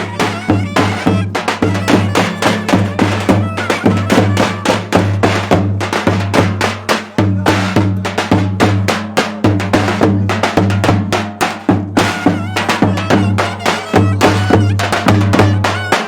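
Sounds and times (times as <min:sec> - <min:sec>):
high wavering wind melody: 0:00.0 - 0:04.9
drum beating heavy strokes: 0:00.0 - 0:16.0.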